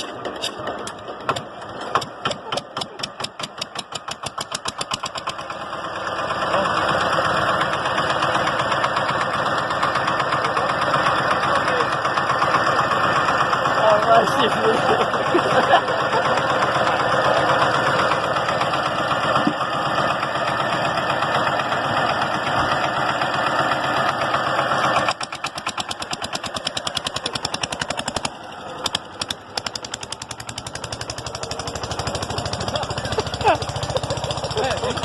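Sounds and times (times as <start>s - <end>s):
engine pops: 0.0s - 5.5s
old engine running: 0.0s - 35.0s.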